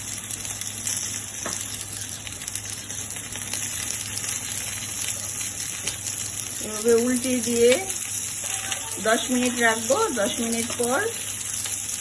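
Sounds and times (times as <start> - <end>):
oil sizzling in a pan: 0.0 - 12.0.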